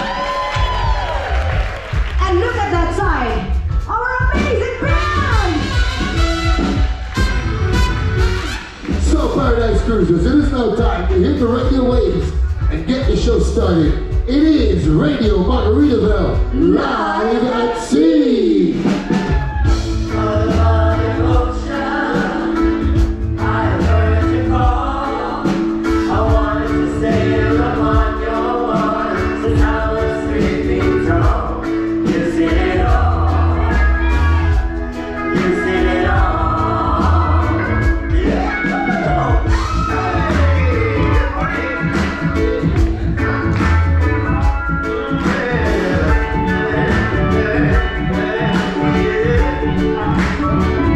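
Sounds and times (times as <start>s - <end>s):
live band music: 0.0s - 50.9s
several voices singing together: 16.5s - 43.6s, 44.2s - 50.9s.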